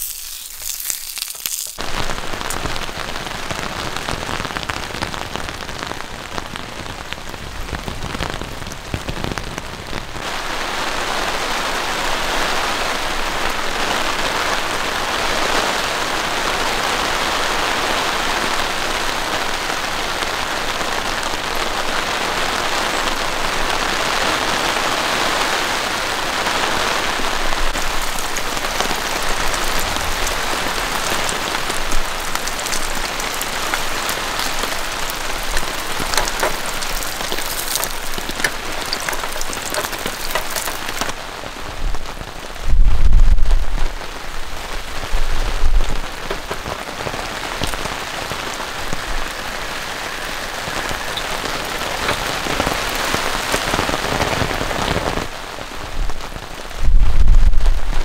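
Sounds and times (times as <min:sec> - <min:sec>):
heavy rain: 0:00.0 - 0:58.0
single raindrops ticking: 0:27.7 - 0:41.1.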